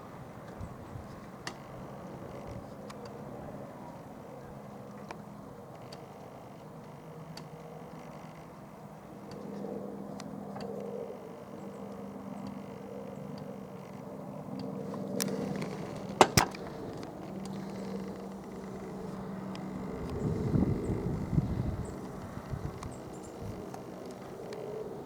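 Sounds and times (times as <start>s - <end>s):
distant helicopter humming: 0.0s - 25.0s
sharp clicks: 14.5s - 20.9s.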